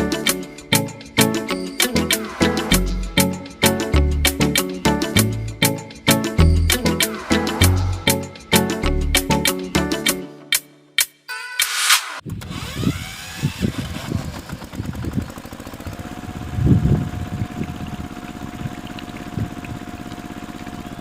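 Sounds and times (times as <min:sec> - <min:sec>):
steady whine: 0:06.5 - 0:09.1
small engine chugging: 0:12.4 - 0:21.0.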